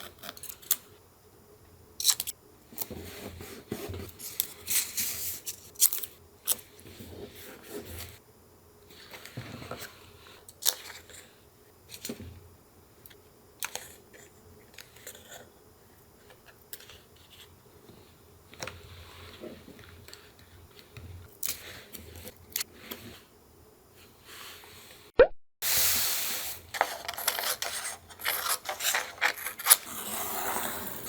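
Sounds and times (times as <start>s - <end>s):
paper rustling and crinkling: 26.7s - 30.1s
paper being cut and torn: 26.8s - 31.0s.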